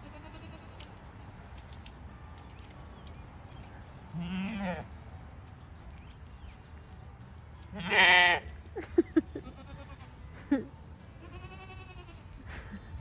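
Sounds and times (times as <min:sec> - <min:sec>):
animal bleat-like cry: 0:07.8 - 0:08.4, 0:11.2 - 0:12.2.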